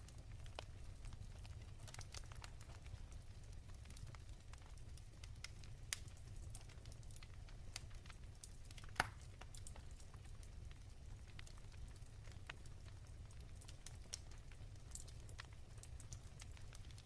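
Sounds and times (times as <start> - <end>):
wood fire crackling: 0.0 - 17.0
loud fire pops: 8.8 - 9.3.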